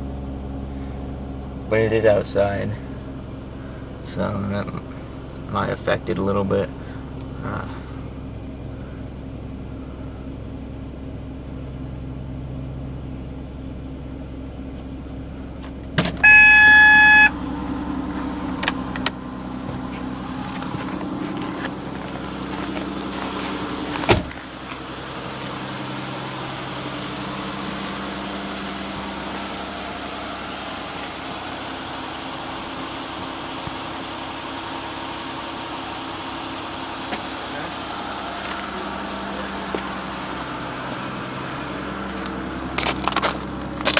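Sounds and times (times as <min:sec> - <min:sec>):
car engine idling: 0:00.0 - 0:43.9
loud steady beep: 0:16.2 - 0:17.4
thump: 0:24.0 - 0:24.4.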